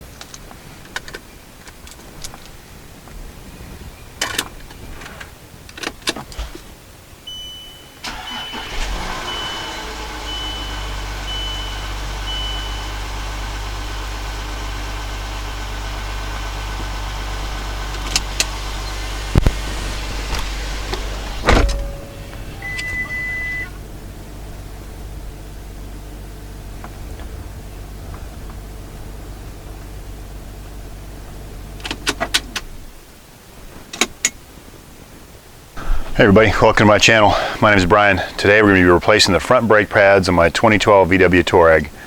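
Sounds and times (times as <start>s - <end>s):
long beep: 7.2s - 14.0s, 21.4s - 23.8s
diesel engine starting and idling: 7.2s - 32.6s, 35.8s - 42.0s
short dashboard beeps: 7.3s - 13.2s, 21.4s - 23.8s.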